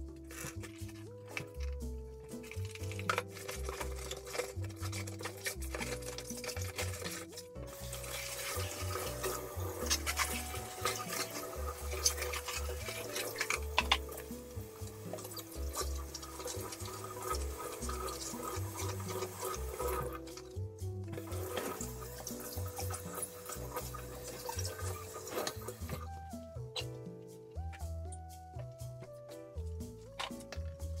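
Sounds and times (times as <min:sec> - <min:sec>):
soft background music: 0:00.0 - 0:31.0
dishes scrubbed: 0:02.3 - 0:14.3, 0:21.2 - 0:26.1
tap water running into sink: 0:02.4 - 0:26.4.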